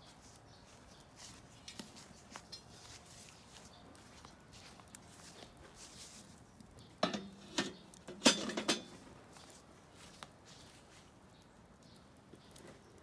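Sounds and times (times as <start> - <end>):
metal cookware clanking: 7.0 - 9.0.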